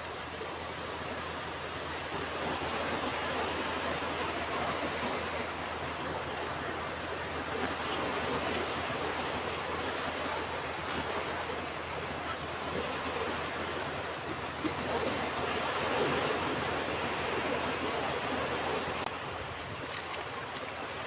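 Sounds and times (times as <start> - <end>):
ocean waves breaking on beach: 0.0 - 21.0.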